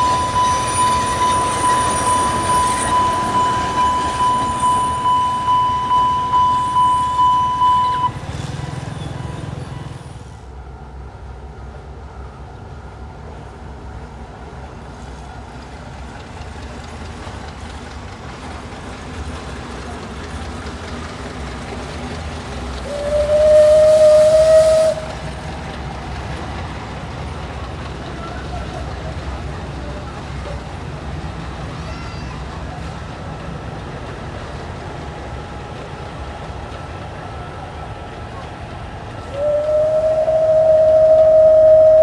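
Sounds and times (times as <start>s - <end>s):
steam whistle blast: 0.0s - 10.3s, 22.8s - 25.6s, 39.3s - 42.0s
steam locomotive rumble: 0.0s - 42.0s.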